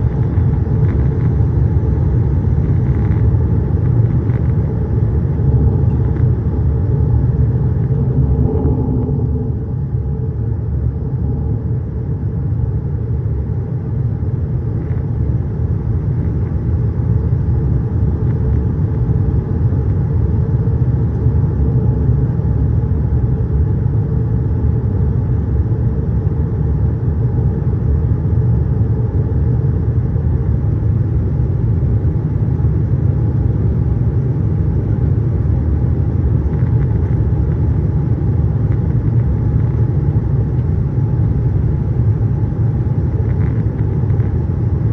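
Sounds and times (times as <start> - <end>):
aircraft cabin engine rumble: 0.0 - 44.9
faint steady hums: 0.0 - 44.9.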